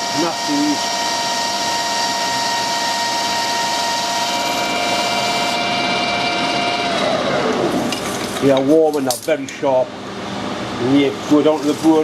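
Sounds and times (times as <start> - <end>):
metal lathe whining: 0.0 - 8.1.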